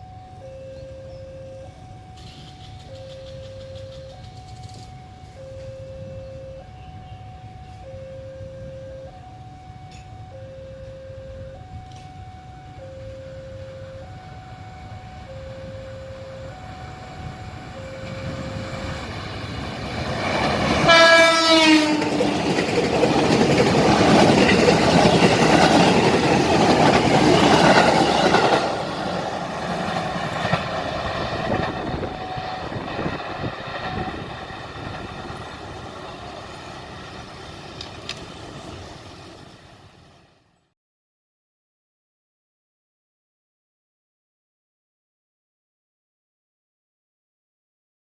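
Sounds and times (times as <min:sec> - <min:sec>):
train wheels clattering on rails: 0:02.2 - 0:05.0, 0:18.1 - 0:39.5
train horn blast: 0:20.8 - 0:22.4.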